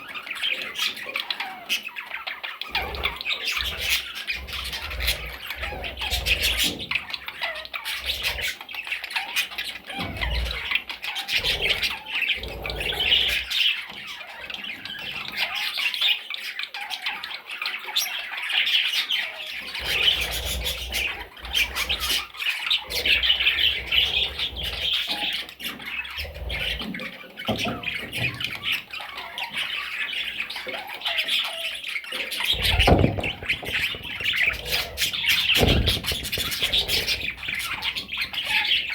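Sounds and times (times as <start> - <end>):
parrot chicks squawking: 0.0 - 38.9
low thumps: 32.5 - 38.3.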